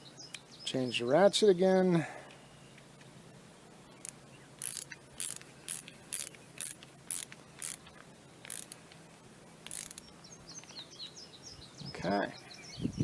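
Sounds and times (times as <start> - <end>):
ratcheting screwdriver clicking: 4.0 - 8.8, 9.6 - 10.0.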